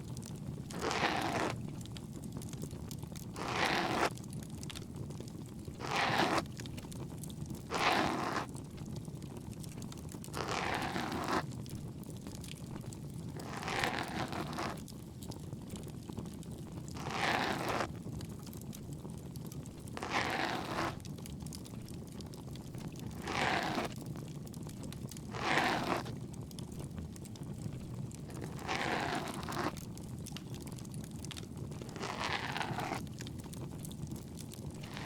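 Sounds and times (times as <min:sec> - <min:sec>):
faint wood fire crackle: 0:00.0 - 0:00.8, 0:01.4 - 0:03.4, 0:04.0 - 0:07.7, 0:08.3 - 0:10.5, 0:11.2 - 0:17.1, 0:17.8 - 0:35.0
tool scraping near microphone: 0:31.9 - 0:33.0, 0:34.8 - 0:35.0.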